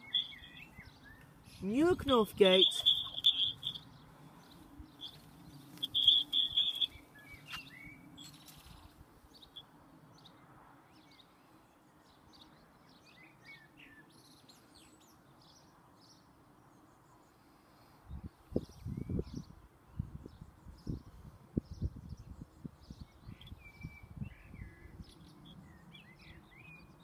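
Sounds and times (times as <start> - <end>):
loud high bird trill: 0.0 - 1.2, 2.2 - 4.0, 5.8 - 8.4
birds singing and chirping: 0.0 - 9.6, 18.6 - 27.0.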